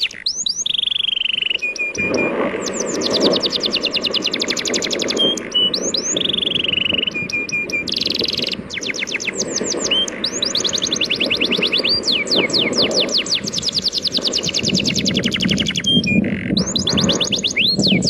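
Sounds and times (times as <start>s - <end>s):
birds chirping in fast trills: 0.0s - 18.0s
sea waves: 1.5s - 13.6s.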